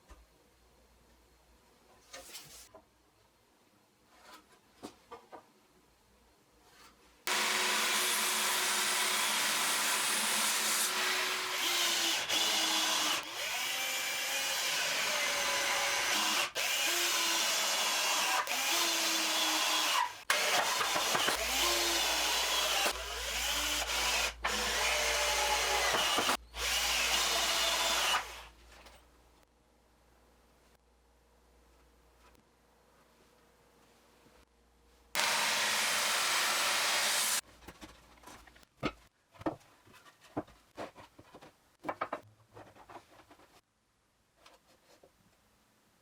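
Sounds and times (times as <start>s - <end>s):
electric power tool motor running: 7.3s - 14.1s, 35.2s - 37.4s.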